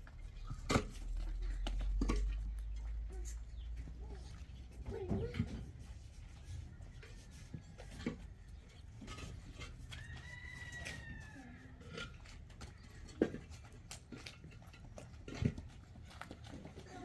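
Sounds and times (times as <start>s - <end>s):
rooster crowing: 10.0s - 11.8s.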